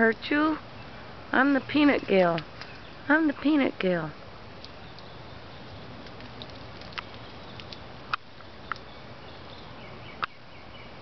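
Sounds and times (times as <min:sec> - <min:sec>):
outdoor background hiss: 0:00.0 - 0:11.0
squirrel gnawing shell: 0:04.5 - 0:08.8.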